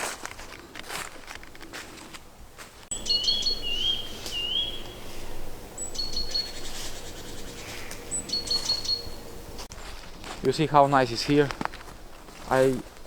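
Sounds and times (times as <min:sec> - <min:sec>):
faint footsteps: 0:00.0 - 0:13.0
songbird singing: 0:02.9 - 0:12.7.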